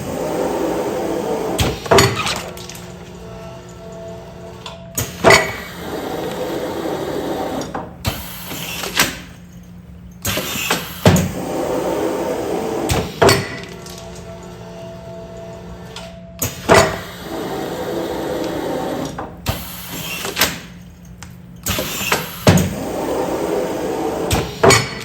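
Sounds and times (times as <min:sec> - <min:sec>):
sealing machine running: 0:00.0 - 0:09.3, 0:10.2 - 0:20.9.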